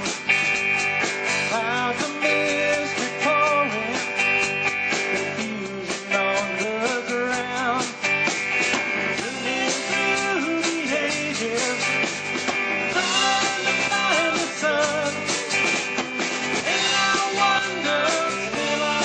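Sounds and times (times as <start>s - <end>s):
rock band playing live: 0.0s - 19.0s.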